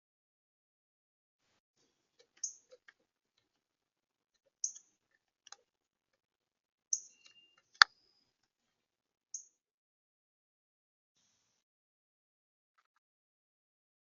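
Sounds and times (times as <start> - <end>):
small birds chip notes: 6.9 - 8.1.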